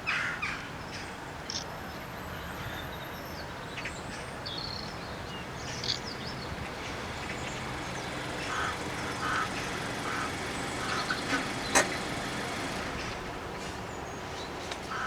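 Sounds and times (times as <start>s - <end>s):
birds calling: 4.6s - 15.0s.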